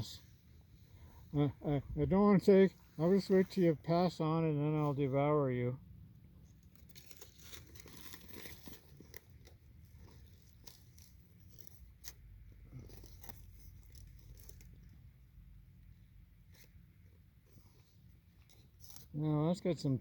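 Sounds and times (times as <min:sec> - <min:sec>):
food wrapper tearing and crinkling: 0:06.6 - 0:15.0.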